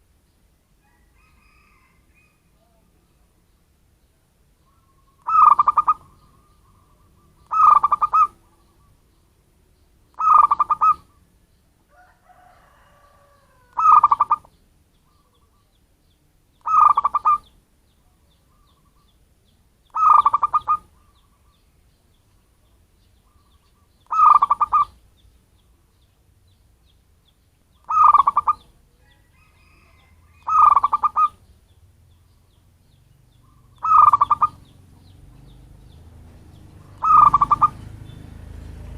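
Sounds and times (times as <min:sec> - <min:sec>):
dove cooing: 0:04.6 - 0:09.0, 0:10.2 - 0:11.2, 0:12.6 - 0:15.7, 0:16.6 - 0:17.5, 0:19.9 - 0:21.5, 0:23.2 - 0:25.0, 0:27.9 - 0:31.5, 0:33.4 - 0:35.6, 0:36.6 - 0:38.2.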